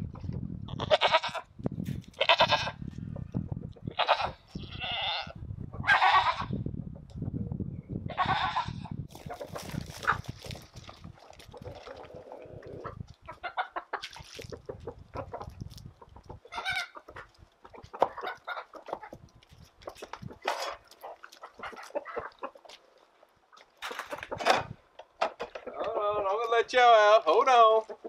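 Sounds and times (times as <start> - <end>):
chickens clucking: 2.7 - 4.6, 8.6 - 26.4, 27.7 - 28.0.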